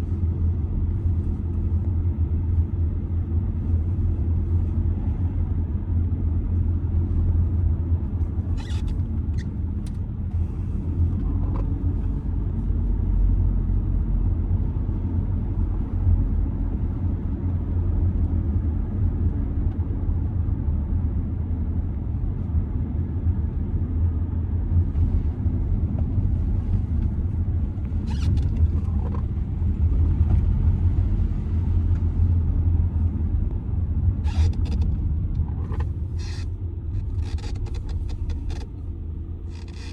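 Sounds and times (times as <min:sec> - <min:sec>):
diesel car engine running: 0:00.0 - 0:39.9
road noise: 0:00.0 - 0:39.9.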